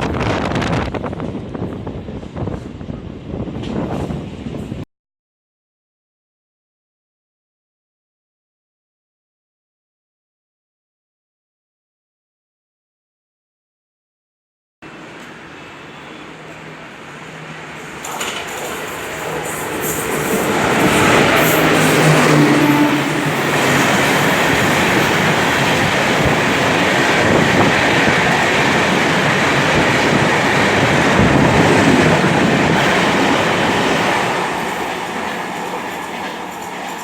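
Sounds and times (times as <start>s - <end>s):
train running on rails: 0.0s - 4.9s, 14.8s - 37.0s.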